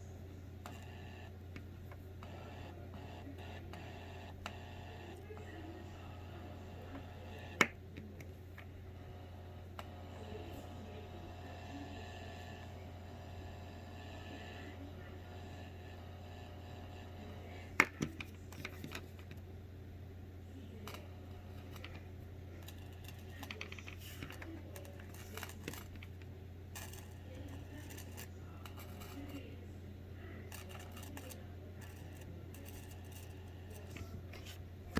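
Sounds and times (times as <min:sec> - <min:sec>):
low mains hum: 0:00.0 - 0:34.9
electrical clicks and scratchy pops: 0:00.7 - 0:05.2, 0:20.9 - 0:29.4, 0:30.5 - 0:34.9.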